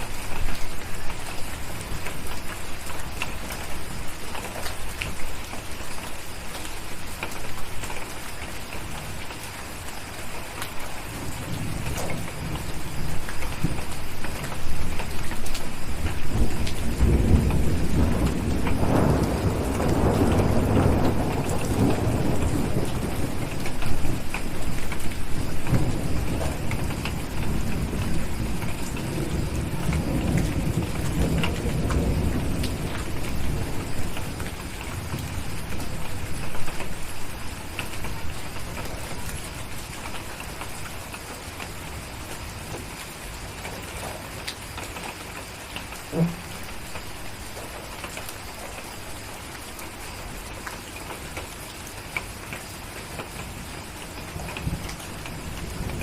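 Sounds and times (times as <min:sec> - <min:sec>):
steady rain: 0:00.0 - 0:56.0
thunder rumbling: 0:10.8 - 0:40.1, 0:46.1 - 0:47.1, 0:54.3 - 0:56.0.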